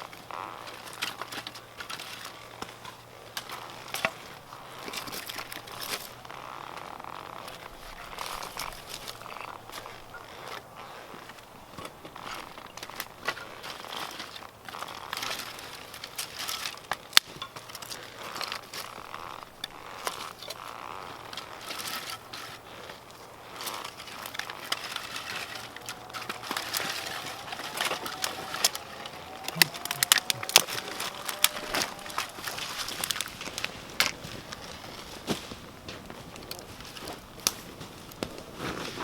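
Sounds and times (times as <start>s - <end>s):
campfire crackling: 0.0s - 39.0s.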